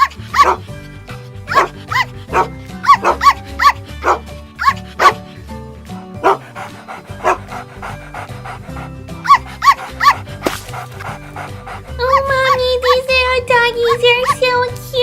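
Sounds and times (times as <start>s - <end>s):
small dog barking: 0.0s - 0.6s, 1.5s - 5.2s, 6.2s - 6.4s, 9.3s - 10.2s
cheerful background music: 0.0s - 15.0s.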